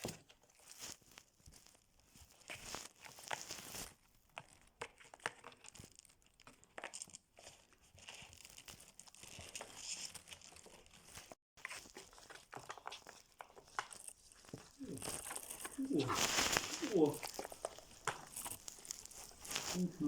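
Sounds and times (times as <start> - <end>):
gift wrapping rustling: 6.8 - 20.0.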